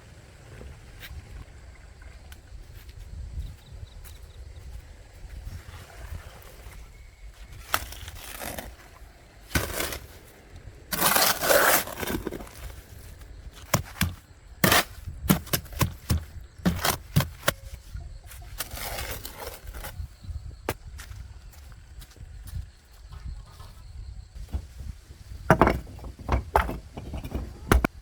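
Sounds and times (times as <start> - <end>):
scraping: 10.9 - 17.7, 24.4 - 28.0.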